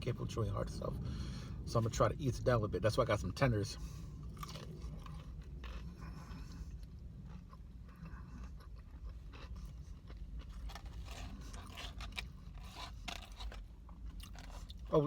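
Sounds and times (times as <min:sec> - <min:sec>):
steady low hum: 0:00.0 - 0:15.0
person chewing crispy food: 0:03.8 - 0:15.0.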